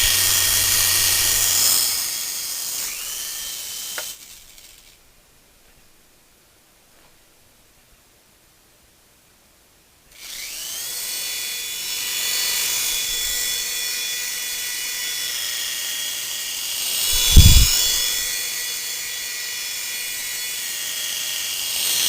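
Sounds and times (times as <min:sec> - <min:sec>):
toy helicopter motor whining: 0:00.0 - 0:05.0, 0:10.1 - 0:22.0.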